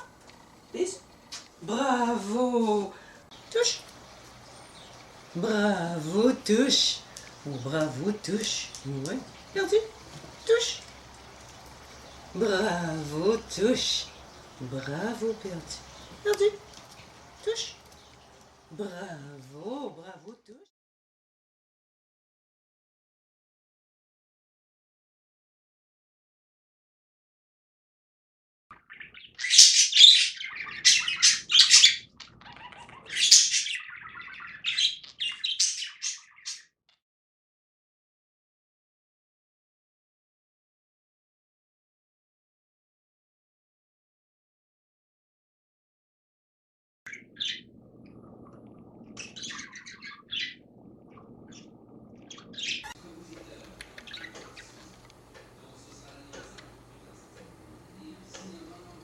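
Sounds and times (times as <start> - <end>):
low background hiss: 0.0 - 20.6
budgerigar chattering: 28.8 - 36.7, 49.2 - 50.6, 52.3 - 53.2, 53.8 - 54.9.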